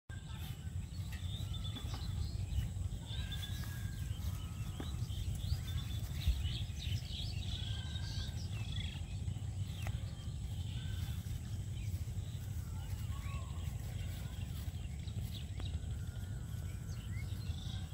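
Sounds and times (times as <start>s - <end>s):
small birds chirping: 0.1s - 17.9s
steady low rumble: 0.1s - 17.9s.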